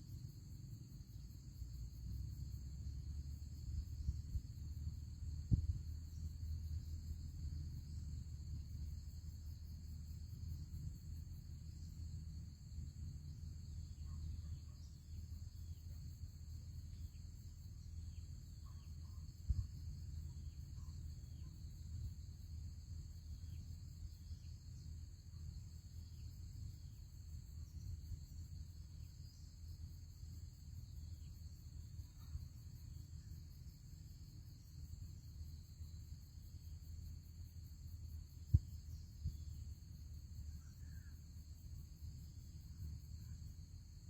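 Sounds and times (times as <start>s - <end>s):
insects chirring: 0.0s - 44.0s
wind rumble on microphone: 2.2s - 8.9s, 19.4s - 20.6s.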